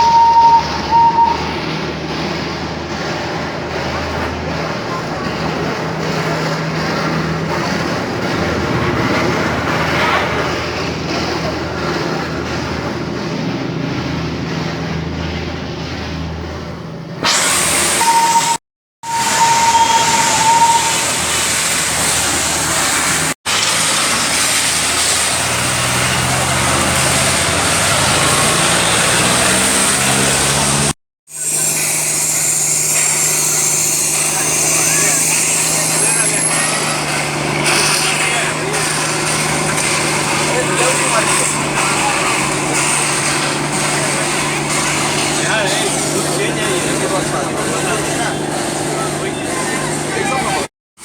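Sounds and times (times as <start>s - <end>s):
vehicle engine running: 0.0s - 17.2s, 19.0s - 50.7s
loud rushing noise: 0.0s - 18.4s, 19.0s - 30.9s
travel noise: 0.0s - 50.7s.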